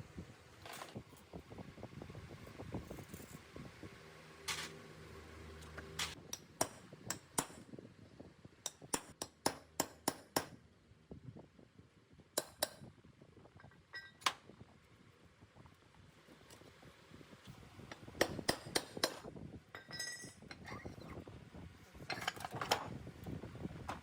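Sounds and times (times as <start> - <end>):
light metallic clinks and taps: 19.7 - 20.6.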